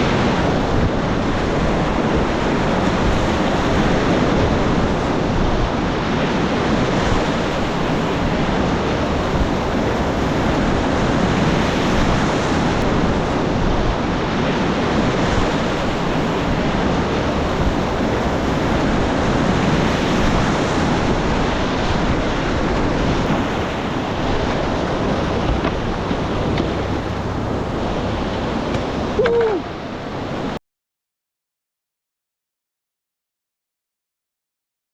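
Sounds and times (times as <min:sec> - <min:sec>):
whitewater river rushing: 0:00.0 - 0:30.6.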